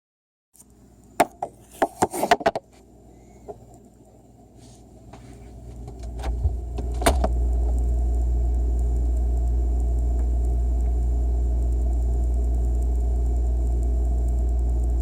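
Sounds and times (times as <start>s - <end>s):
refrigerator compressor hum: 0.6s - 15.0s
refrigerator clicks and knocks: 5.9s - 7.3s.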